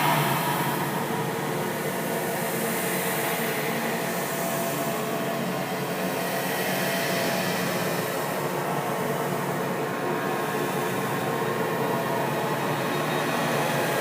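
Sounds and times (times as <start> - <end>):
scary drone noise: 0.0 - 5.1.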